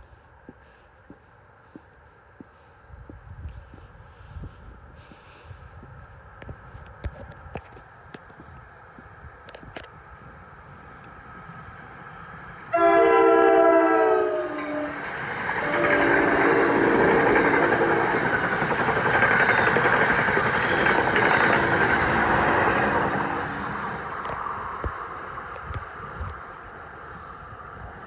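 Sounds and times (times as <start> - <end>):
train wheels rushing past: 10.0 - 28.0
train horn blasts: 12.7 - 18.0.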